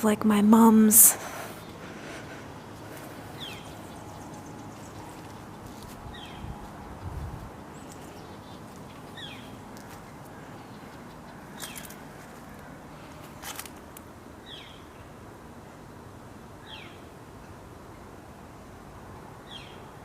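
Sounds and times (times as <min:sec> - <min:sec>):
low rumbles: 0:01.0 - 0:13.4.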